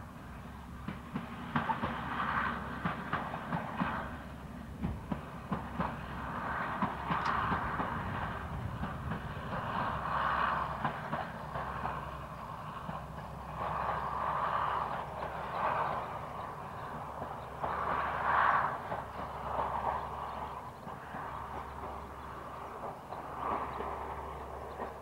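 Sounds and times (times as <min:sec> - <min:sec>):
diesel engines rumbling: 0:00.0 - 0:25.0
wheels clicking over rail joints: 0:00.0 - 0:25.0.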